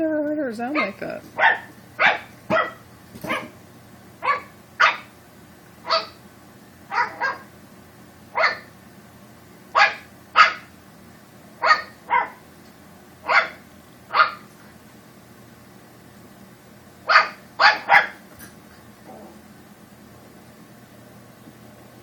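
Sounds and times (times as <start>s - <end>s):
puppy barking fiercely: 0.7s - 3.6s, 4.2s - 5.2s, 5.8s - 6.2s, 6.9s - 7.5s, 8.3s - 8.7s, 9.7s - 10.8s, 11.6s - 12.4s, 13.2s - 14.5s, 17.0s - 18.2s.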